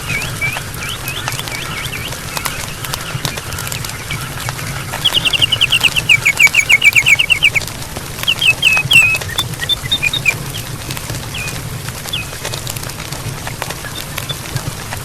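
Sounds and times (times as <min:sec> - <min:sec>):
bird chirping: 0:05.0 - 0:07.6, 0:08.2 - 0:10.6.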